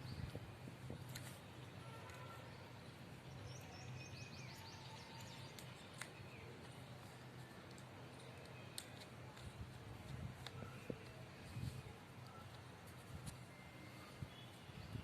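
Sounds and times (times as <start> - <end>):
bird chirping: 2.2 - 7.2.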